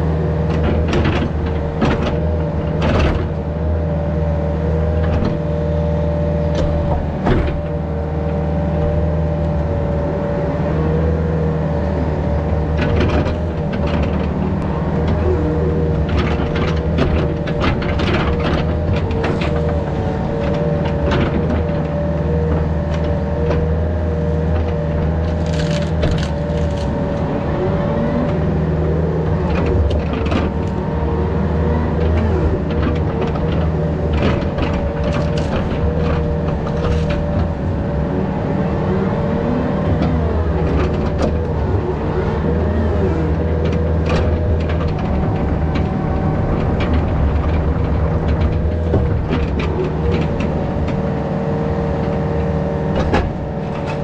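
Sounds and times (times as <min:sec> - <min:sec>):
excavator diesel engine running: 0:00.0 - 0:54.0
cracks and knocks: 0:25.1 - 0:27.3.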